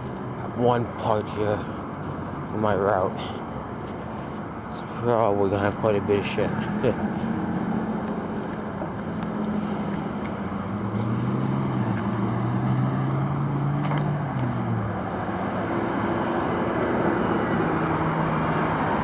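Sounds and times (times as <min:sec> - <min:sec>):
traffic noise: 0:00.0 - 0:19.0
passing vehicle engine drone: 0:04.8 - 0:19.0.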